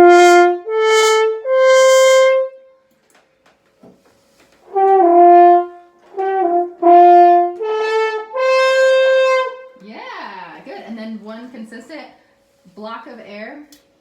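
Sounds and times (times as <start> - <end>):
french horn notes: 0.0 - 2.9, 4.4 - 9.8.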